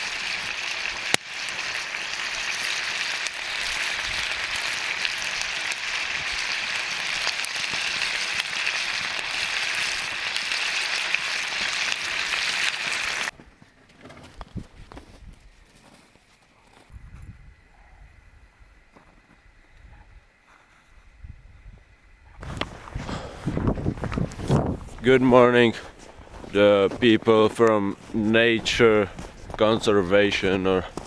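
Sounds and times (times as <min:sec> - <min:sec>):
food sizzling in a pan: 0:00.0 - 0:13.3.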